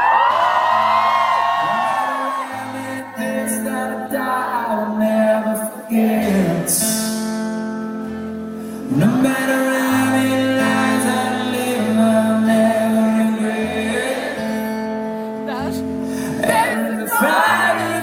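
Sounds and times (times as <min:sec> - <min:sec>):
slow rock song: 0:00.0 - 0:18.0
person singing long notes: 0:16.2 - 0:18.0.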